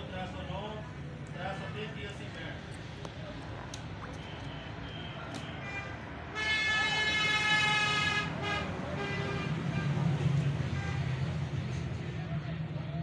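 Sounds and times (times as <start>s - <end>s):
traffic rumble: 0.0s - 13.0s
vehicle horn: 4.5s - 11.3s.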